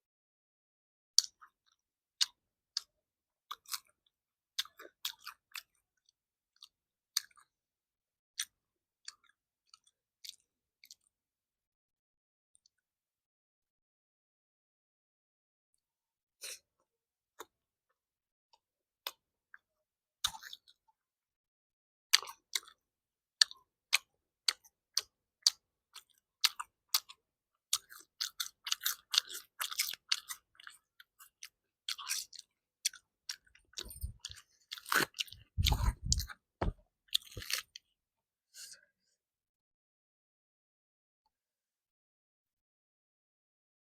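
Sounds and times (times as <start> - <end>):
person chewing food: 1.2 - 7.6, 8.4 - 11.1, 19.0 - 21.0, 22.1 - 22.8, 23.4 - 37.9
wet mouth clicks: 32.0 - 36.4
dull low thumps: 35.5 - 36.8.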